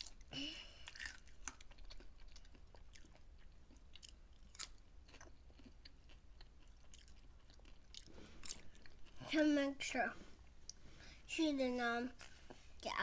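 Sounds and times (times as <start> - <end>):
chewing popcorn: 0.0 - 9.3.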